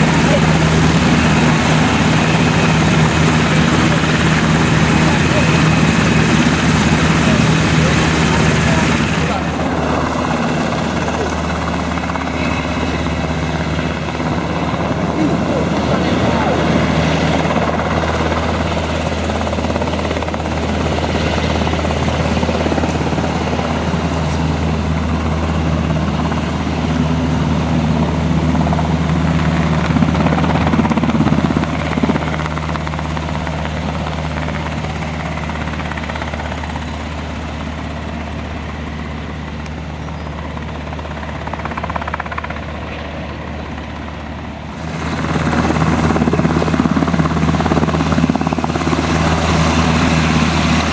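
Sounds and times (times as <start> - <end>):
helicopter engine and rotor drone: 0.0 - 50.9.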